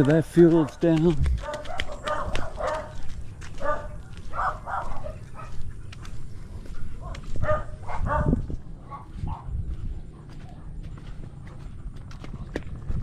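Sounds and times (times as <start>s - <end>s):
dog barking: 0.5s - 5.6s, 6.6s - 9.6s.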